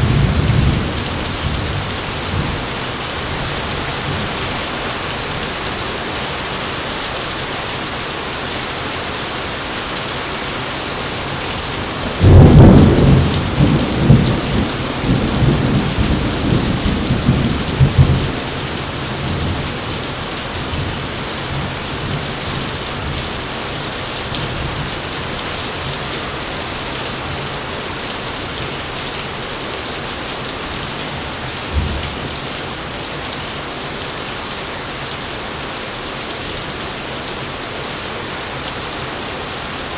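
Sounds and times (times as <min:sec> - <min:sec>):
thunder rumbling: 0:00.0 - 0:04.8, 0:12.1 - 0:19.7
heavy rain: 0:00.0 - 0:39.9.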